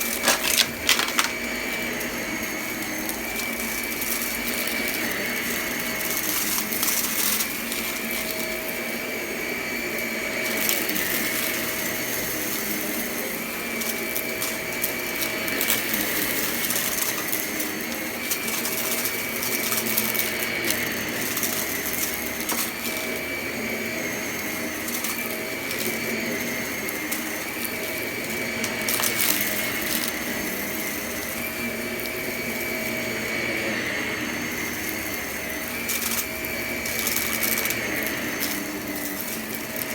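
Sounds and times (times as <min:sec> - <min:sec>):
debris crackling in vacuum: 0:00.0 - 0:01.5
vacuum cleaner motor whine: 0:00.0 - 0:39.9.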